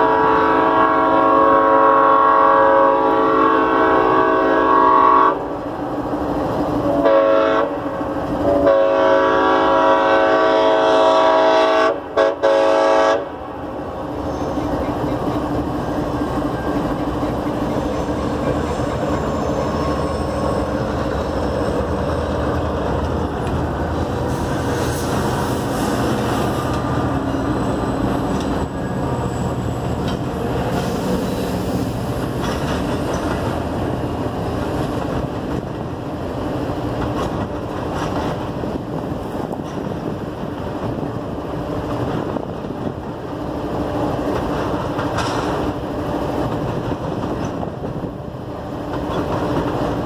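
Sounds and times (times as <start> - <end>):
train wheels rumbling on rail: 0.0 - 50.0
locomotive engine drone: 12.8 - 50.0.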